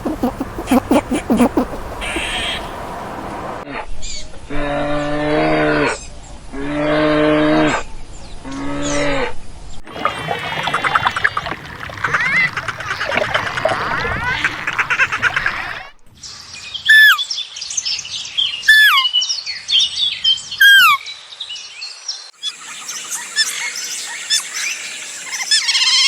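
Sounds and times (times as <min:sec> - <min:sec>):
birds chirping: 0:00.0 - 0:03.6, 0:09.9 - 0:15.8
loud down-slurred bird call: 0:00.0 - 0:03.6.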